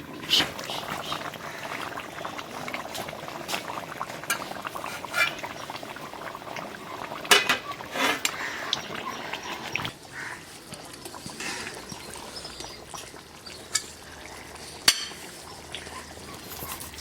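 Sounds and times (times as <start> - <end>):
curry bubbling in a pot: 0.0 - 17.0
metal clinks against a pot: 4.3 - 5.5, 7.3 - 8.3.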